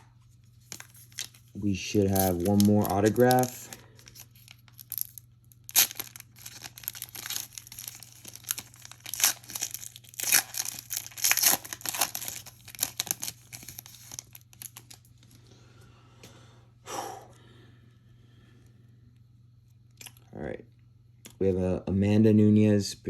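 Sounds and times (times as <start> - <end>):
wrapper tearing and crinkling: 0.6 - 15.1
pack rustling: 2.1 - 5.1.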